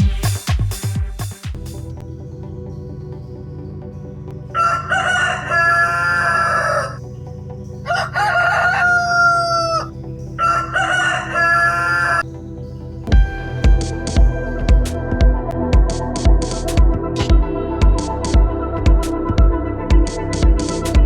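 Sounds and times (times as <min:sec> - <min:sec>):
faint background music: 0:01.7 - 0:21.0
rooster crowing: 0:04.6 - 0:07.0, 0:07.8 - 0:12.2.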